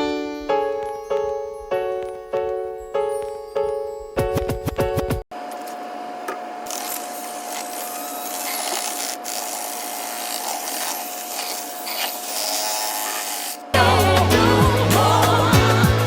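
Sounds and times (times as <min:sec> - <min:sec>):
power tool motor whining: 0:06.6 - 0:13.8.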